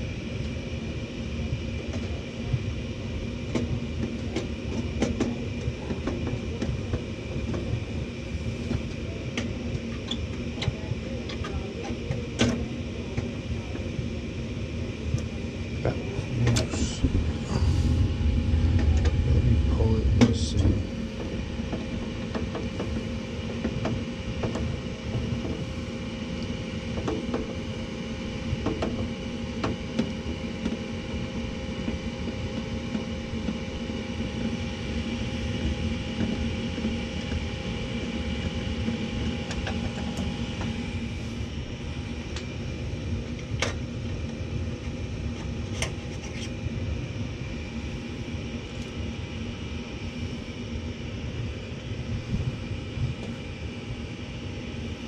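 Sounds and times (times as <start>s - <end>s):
gas furnace humming: 0.0s - 55.0s.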